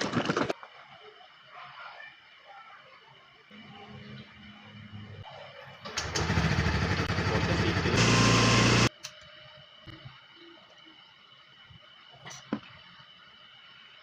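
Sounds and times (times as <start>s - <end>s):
scooter engine running: 5.9s - 8.9s.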